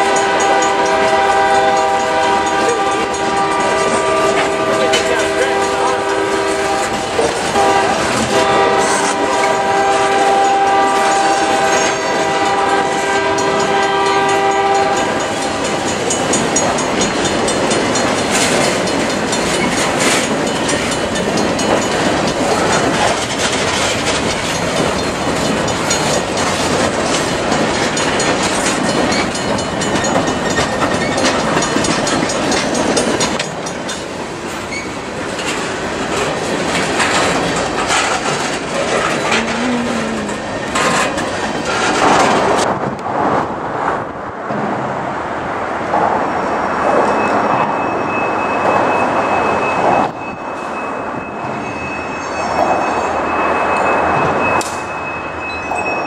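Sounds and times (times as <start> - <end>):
wheels clacking over rail joints: 0.0 - 43.5
train wheels rumbling on rail: 0.0 - 56.0.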